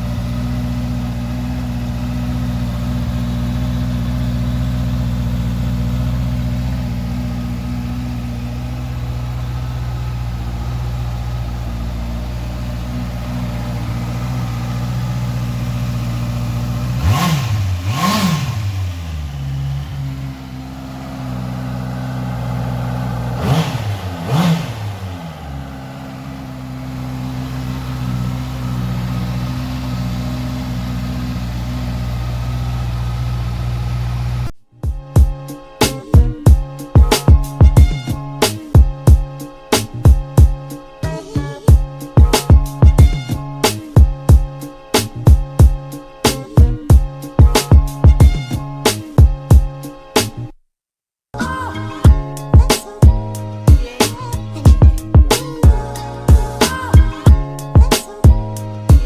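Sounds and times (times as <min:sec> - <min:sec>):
engine revving: 0:00.0 - 0:34.6, 0:51.4 - 0:59.0
motorcycle engine idling: 0:00.0 - 0:34.6, 0:52.0 - 0:59.0.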